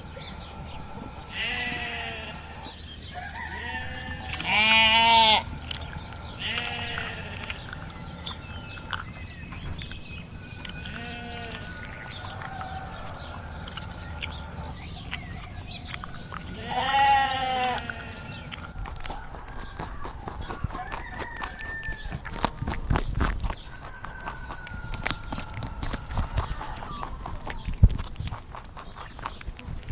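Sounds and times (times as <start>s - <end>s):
livestock bleating: 1.3s - 2.6s, 3.5s - 5.5s, 6.4s - 7.5s, 10.8s - 11.7s, 16.5s - 18.4s.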